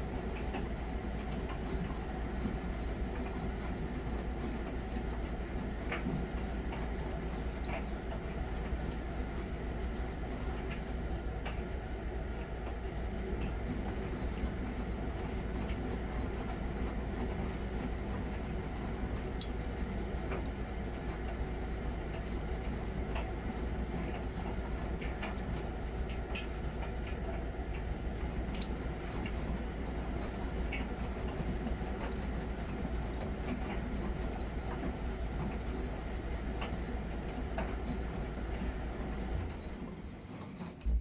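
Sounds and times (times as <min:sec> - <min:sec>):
washing machine drum rumbling: 0:20.4 - 0:30.4, 0:40.8 - 0:41.0.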